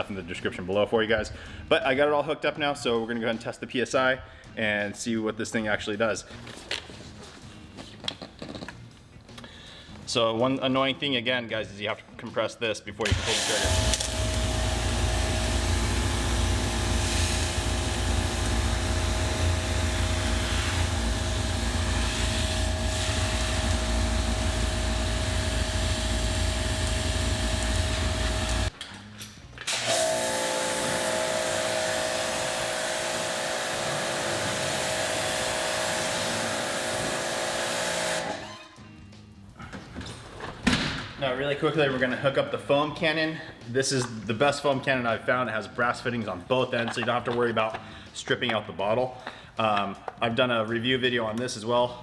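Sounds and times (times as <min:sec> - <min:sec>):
pressure washer motor and pump: 0:13.0 - 0:28.8, 0:29.6 - 0:38.6
water spraying: 0:13.1 - 0:28.7.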